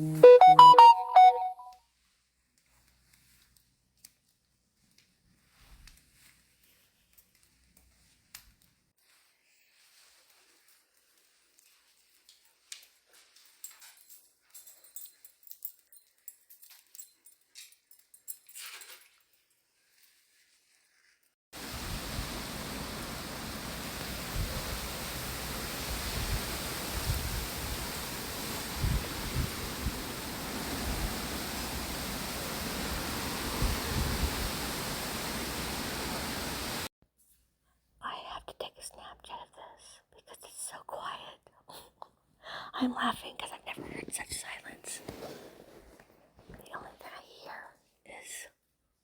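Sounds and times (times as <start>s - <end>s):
steady wind hiss: 21.6s - 36.9s
wind gusts buffeting microphone: 21.6s - 36.9s.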